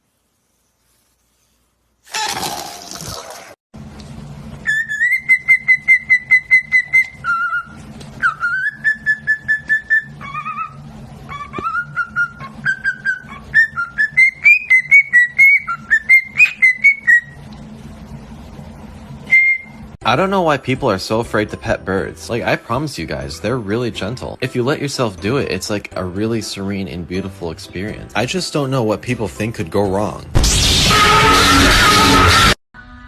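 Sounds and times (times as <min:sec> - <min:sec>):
steady low hum: 0:03.8 - 0:24.4
parrot whistling a tune: 0:04.6 - 0:17.4, 0:19.3 - 0:19.8.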